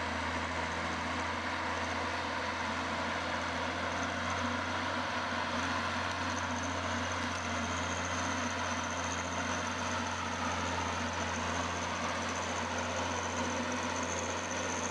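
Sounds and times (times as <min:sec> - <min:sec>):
machinery motor humming and whining: 0:00.0 - 0:14.9.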